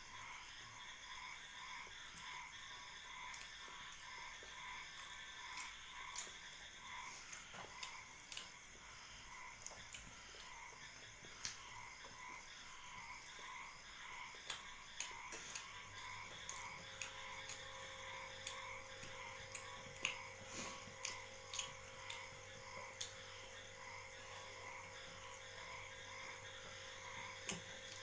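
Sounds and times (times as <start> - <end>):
faint steady hum: 0.0 - 28.0
close wet chewing: 3.2 - 12.3, 14.3 - 28.0
lip smacks: 18.4 - 23.2.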